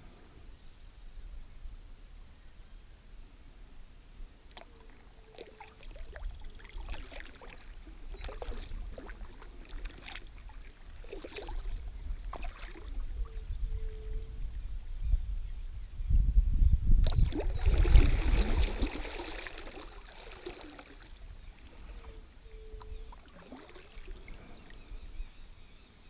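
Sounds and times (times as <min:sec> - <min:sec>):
paddle splashes in water: 0:04.5 - 0:13.1, 0:17.0 - 0:22.2, 0:22.8 - 0:24.8.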